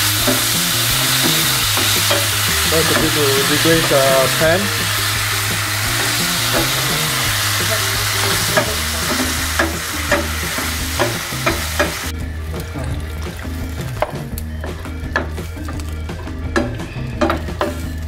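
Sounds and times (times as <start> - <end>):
vegetables sizzling in frying pan: 0.0 - 12.1
wooden spatula knocking pan: 0.0 - 12.1, 13.7 - 15.9, 16.5 - 18.0.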